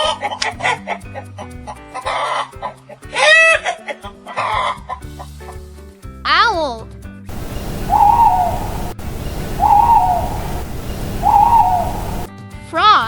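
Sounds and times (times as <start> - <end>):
owl hooting: 7.3 - 12.3
steady background hiss: 7.3 - 12.3.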